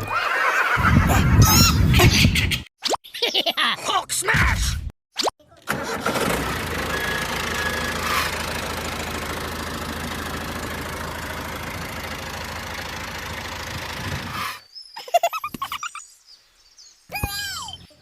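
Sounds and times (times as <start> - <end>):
small tractor motor chugging: 5.7 - 14.4
short tones: 6.8 - 8.2.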